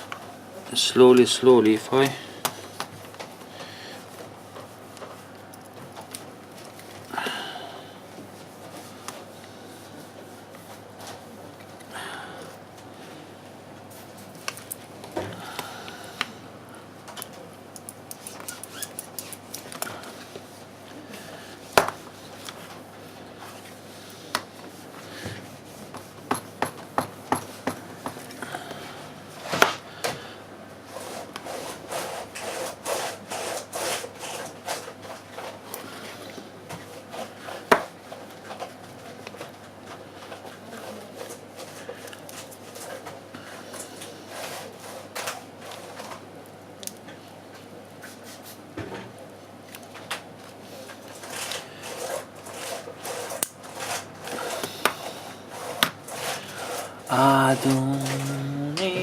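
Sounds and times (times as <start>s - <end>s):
hand tools scraping on phone: 30.9s - 35.6s, 51.2s - 59.0s.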